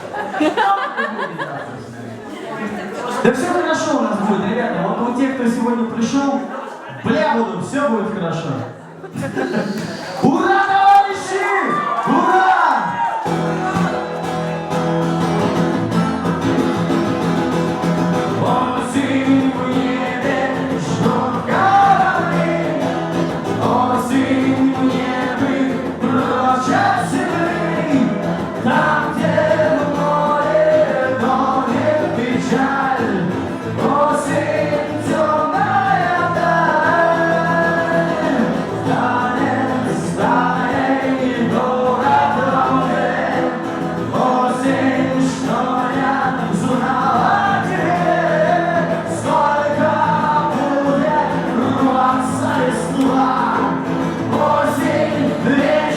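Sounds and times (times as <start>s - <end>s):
several voices singing: 15.3s - 55.9s.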